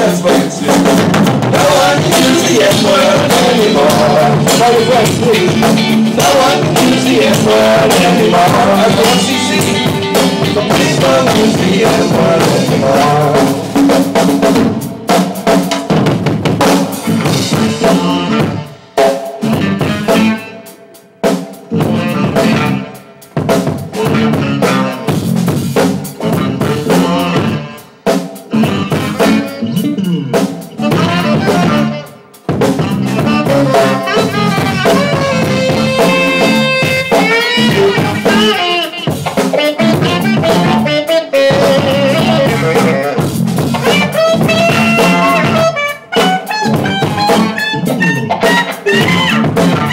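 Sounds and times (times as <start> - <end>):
drum kit: 0.0 - 49.9
live rock band playing: 0.0 - 49.9
sustained lead line: 0.1 - 16.0.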